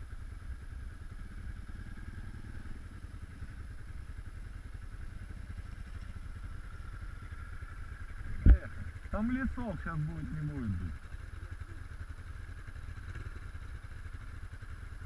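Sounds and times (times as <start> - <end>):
motorcycle engine running steadily: 0.0 - 15.0.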